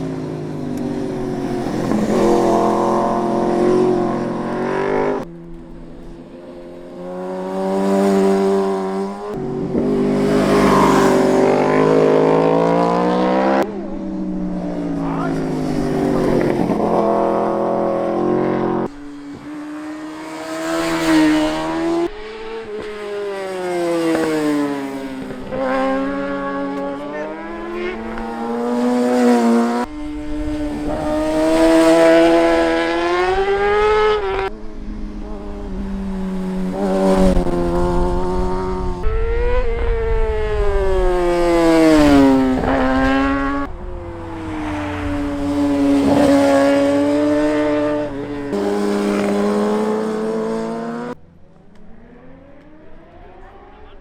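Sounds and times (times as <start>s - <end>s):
superbike engine revving through gears: 0.0s - 5.3s, 7.0s - 13.9s, 15.0s - 51.2s.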